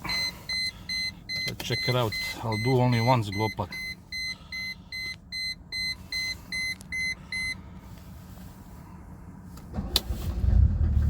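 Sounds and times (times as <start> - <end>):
car warning chime beeping: 0.0 - 7.6.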